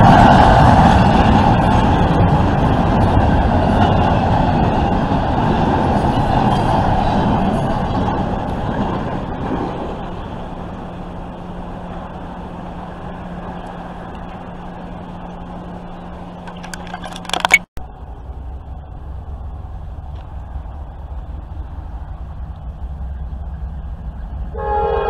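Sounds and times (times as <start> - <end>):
freight train rumbling past: 0.0 - 16.5, 17.8 - 25.0
steady low hum: 10.0 - 24.6
sharp clicks: 16.5 - 17.7.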